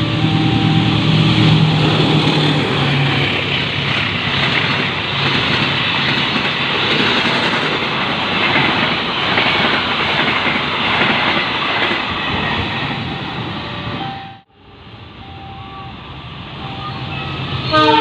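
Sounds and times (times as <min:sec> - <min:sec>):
train wheels rumbling on rails: 0:00.0 - 0:14.1.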